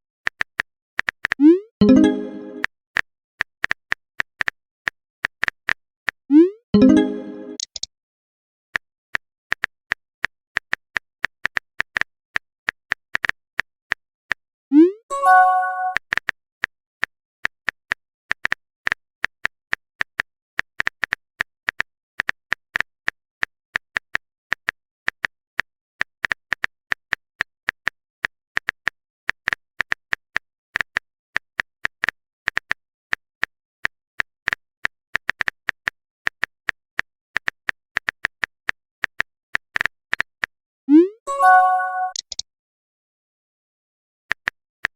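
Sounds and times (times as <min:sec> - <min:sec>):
phone keyboard typing clicks: 0:00.3 - 0:02.7, 0:06.8 - 0:07.9, 0:41.4 - 0:42.4.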